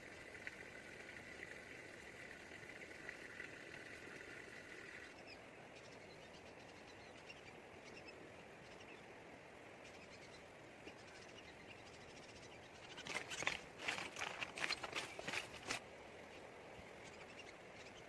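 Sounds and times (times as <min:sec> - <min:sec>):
faint bird chirps: 0:04.8 - 0:09.1, 0:09.8 - 0:15.4, 0:16.3 - 0:18.0
crackling and rustling clicks: 0:12.9 - 0:15.8.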